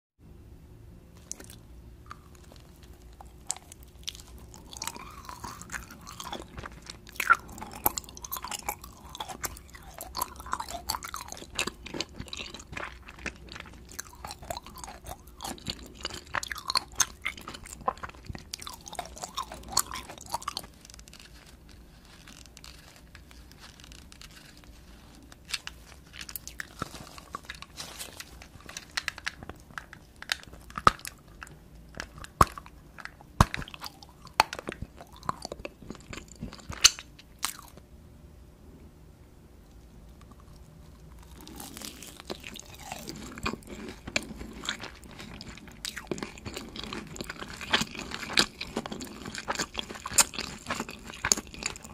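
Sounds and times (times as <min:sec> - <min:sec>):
chewing candy crunching: 0:01.2 - 0:37.8, 0:39.8 - 0:51.9.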